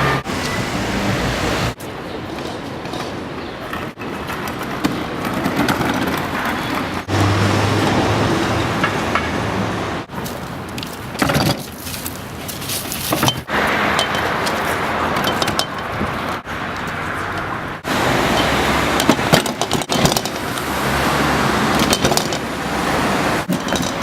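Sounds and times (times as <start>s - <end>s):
cars going past: 0.0s - 1.8s, 6.4s - 10.2s, 13.5s - 23.5s.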